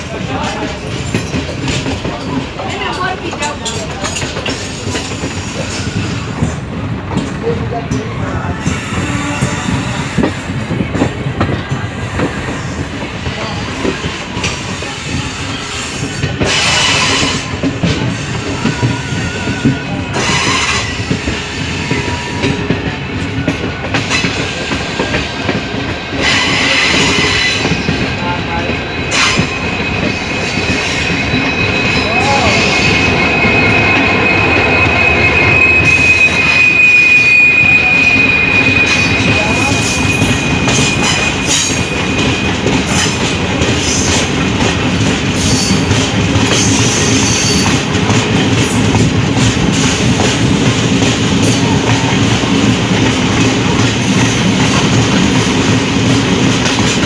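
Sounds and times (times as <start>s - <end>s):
train wheels rolling on rails: 0.0s - 57.0s
high-pitched wheel squeal: 29.0s - 44.3s, 46.5s - 48.0s.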